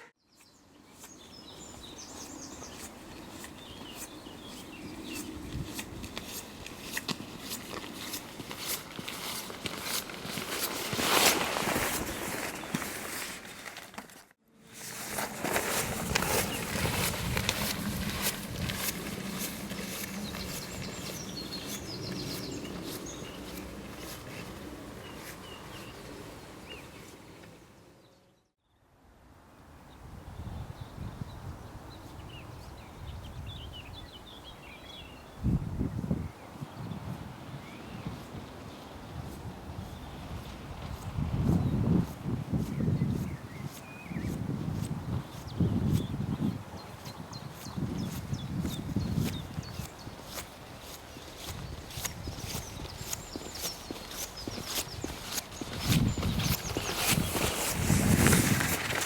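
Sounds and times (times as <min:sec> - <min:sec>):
birds chirping: 0:00.0 - 0:05.8, 0:16.1 - 0:28.5, 0:31.3 - 0:35.6, 0:42.6 - 0:44.4, 0:45.0 - 0:59.0
footsteps: 0:01.7 - 0:27.2, 0:47.6 - 0:59.0.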